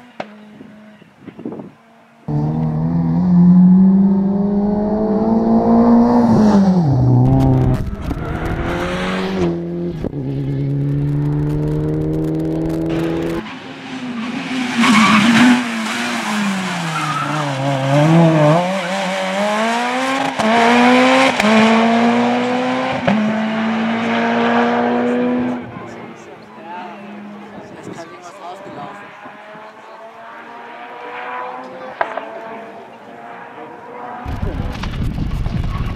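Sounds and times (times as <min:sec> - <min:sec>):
rally car engine: 0:00.0 - 0:35.9.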